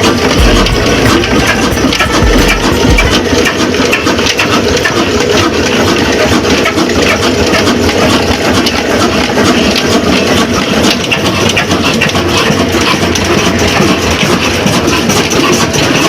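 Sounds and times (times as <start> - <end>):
diesel engine clattering: 0.0 - 3.4.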